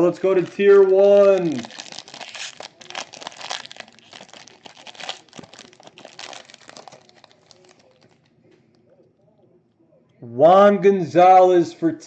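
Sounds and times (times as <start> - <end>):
packaging crinkling and ripping: 0.0 - 8.3.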